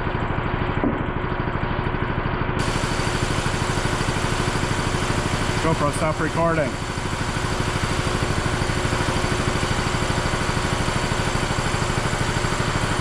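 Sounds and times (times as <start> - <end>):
engine idling: 2.6 - 13.0.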